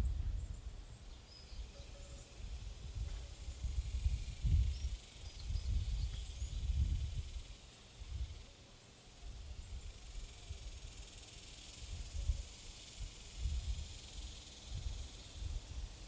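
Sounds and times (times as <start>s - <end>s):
wind gusting on microphone: 0.0s - 1.1s, 2.4s - 8.4s, 11.8s - 16.0s.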